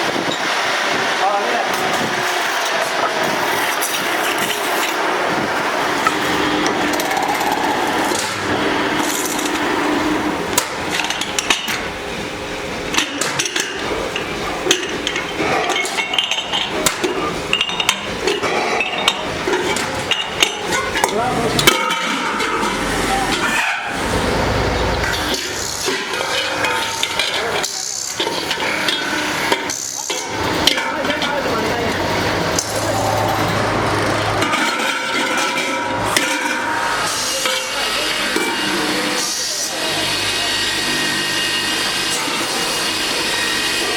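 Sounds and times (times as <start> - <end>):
workshop din: 0.0 - 43.9.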